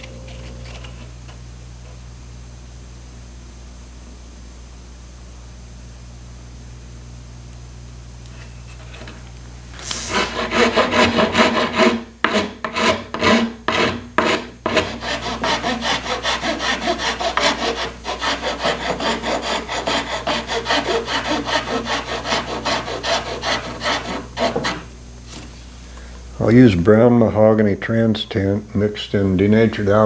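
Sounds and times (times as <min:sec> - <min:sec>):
hand tool rasping wood: 0:09.8 - 0:24.9.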